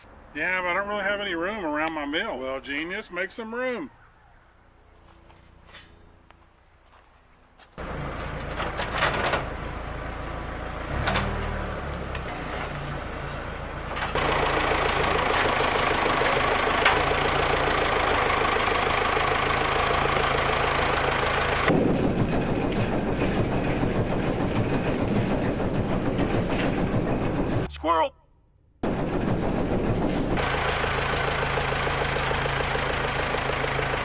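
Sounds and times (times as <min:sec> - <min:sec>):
engine starting and running: 0:07.8 - 0:27.8, 0:28.8 - 0:34.0.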